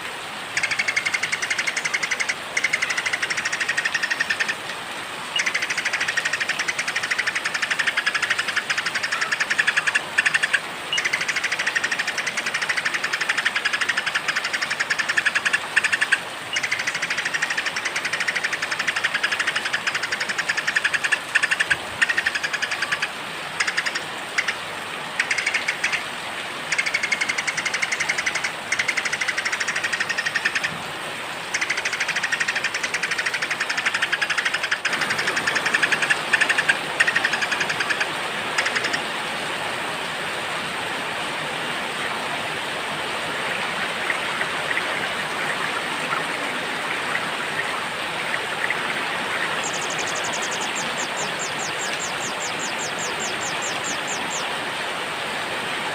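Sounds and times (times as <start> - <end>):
steady rain: 0.0 - 55.9
small birds buzzy trills: 5.3 - 24.6, 44.1 - 54.5.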